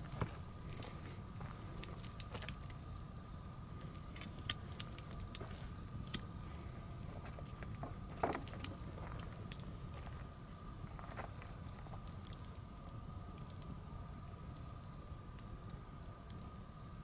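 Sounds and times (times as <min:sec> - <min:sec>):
sharp pops from fire: 0:00.0 - 0:09.9, 0:11.3 - 0:17.0
bonfire crackling: 0:00.0 - 0:17.0
low steady rumble: 0:00.0 - 0:17.0.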